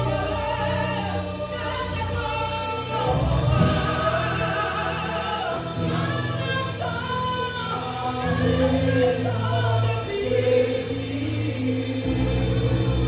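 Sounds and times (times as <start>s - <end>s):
band with bass: 0.0s - 13.0s
choir singing gospel: 0.0s - 13.0s.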